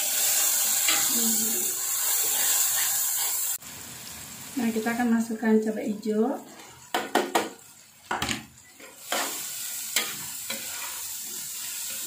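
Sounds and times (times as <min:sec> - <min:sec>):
metal spatula scraping wok: 0:00.0 - 0:03.6, 0:06.4 - 0:06.9, 0:08.7 - 0:12.0
frying sizzle: 0:00.0 - 0:12.0.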